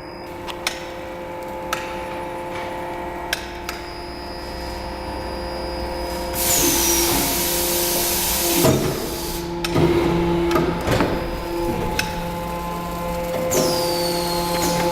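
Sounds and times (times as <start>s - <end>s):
die-casting machine humming: 0.0s - 14.9s
loud hiss: 6.1s - 9.5s, 11.4s - 14.8s
machine clunks: 9.6s - 12.5s.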